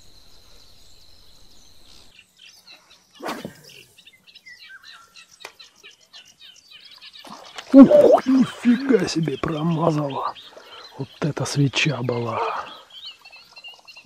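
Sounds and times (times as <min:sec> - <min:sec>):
wild birds chirping: 0:00.0 - 0:14.0.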